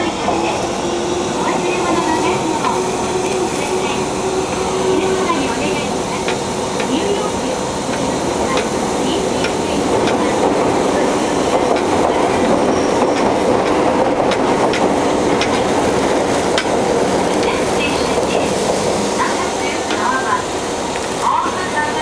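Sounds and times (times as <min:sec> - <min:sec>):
train rumbling at speed: 0:00.0 - 0:22.0
wheels clicking on rails: 0:07.9 - 0:20.2.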